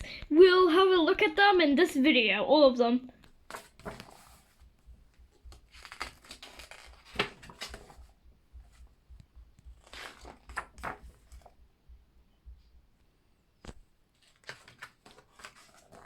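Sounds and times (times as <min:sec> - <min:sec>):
paper pages turning: 0:03.2 - 0:08.8, 0:09.6 - 0:11.5, 0:13.7 - 0:16.0.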